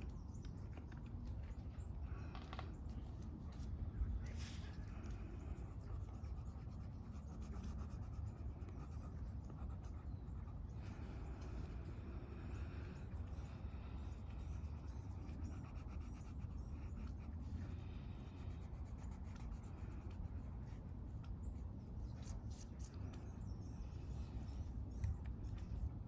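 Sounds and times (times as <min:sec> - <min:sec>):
low outdoor rumble: 0:00.0 - 0:26.0
coloring tool scratching paper: 0:05.5 - 0:10.7, 0:14.2 - 0:17.5, 0:18.3 - 0:20.8.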